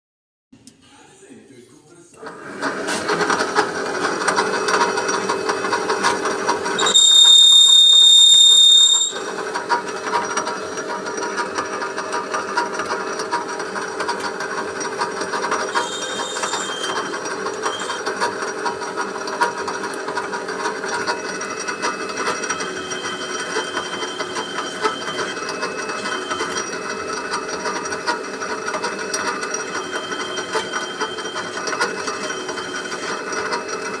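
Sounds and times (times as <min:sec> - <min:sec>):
lathe machining noise: 0:02.2 - 0:34.0
faint whistling tones: 0:06.8 - 0:09.4, 0:15.8 - 0:18.0, 0:21.7 - 0:26.8
high-pitched squeal: 0:06.8 - 0:09.6, 0:15.7 - 0:18.1.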